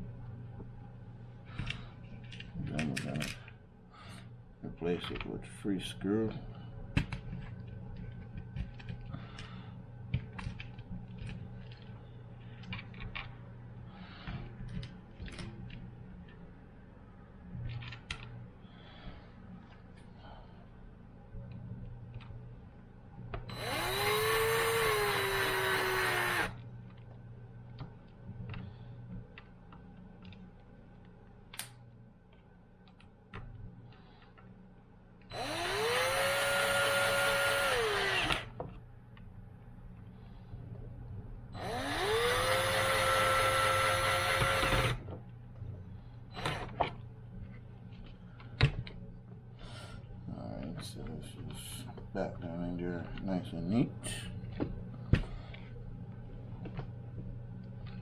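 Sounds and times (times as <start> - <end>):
power drill driving screws: 23.5 - 26.6, 35.3 - 38.5, 41.6 - 45.0.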